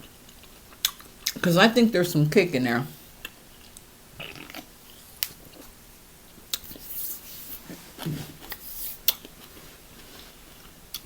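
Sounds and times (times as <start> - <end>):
chewing and wet smacking: 0.0 - 1.4, 3.2 - 5.8, 6.4 - 7.0, 7.7 - 9.7, 10.5 - 11.0.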